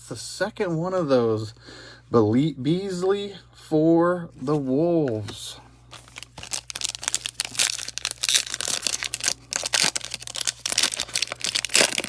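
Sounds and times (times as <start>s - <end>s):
foil wrapper crinkling: 5.9s - 12.0s.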